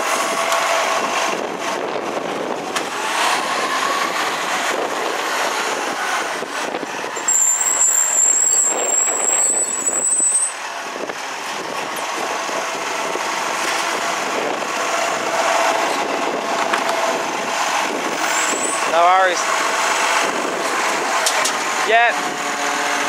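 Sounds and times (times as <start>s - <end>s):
garbage truck running: 0.0s - 23.0s
high-pitched whine: 7.1s - 10.6s.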